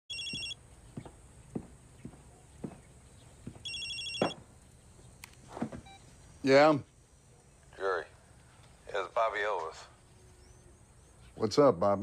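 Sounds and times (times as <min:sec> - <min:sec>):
telephone ringing: 0:00.1 - 0:00.6, 0:03.6 - 0:04.4
soft thuds: 0:01.0 - 0:04.5, 0:05.5 - 0:05.9.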